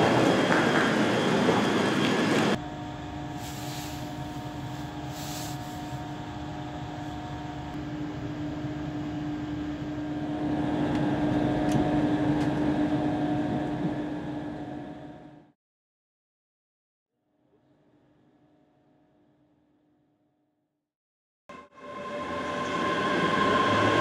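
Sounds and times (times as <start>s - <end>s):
electric train humming: 0.0s - 14.2s, 21.5s - 24.0s.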